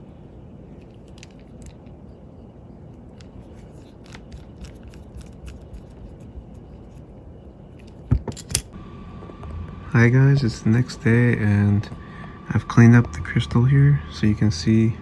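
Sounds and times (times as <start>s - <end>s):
low background rumble: 0.0s - 15.0s
small clicks handling watch tools: 3.2s - 7.0s.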